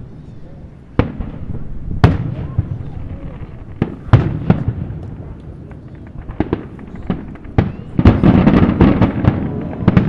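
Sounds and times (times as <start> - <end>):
fireworks bangs: 0.9 - 10.0
fireworks crackling pops: 1.0 - 10.0.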